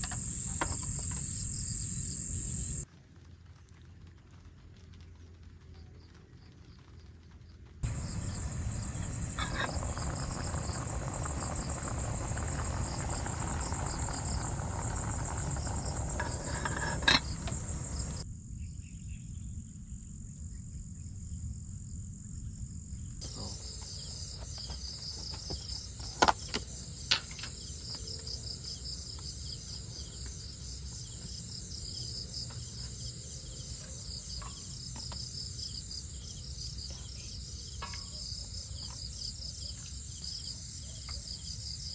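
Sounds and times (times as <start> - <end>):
insects trilling: 0.0 - 2.8, 7.8 - 41.9.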